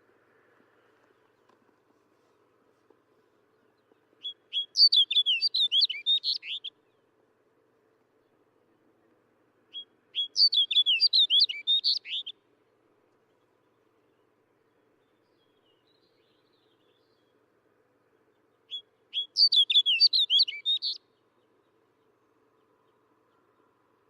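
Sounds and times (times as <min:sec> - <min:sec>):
bird singing warbled song: 0:03.4 - 0:07.2, 0:09.7 - 0:12.4, 0:13.2 - 0:24.0.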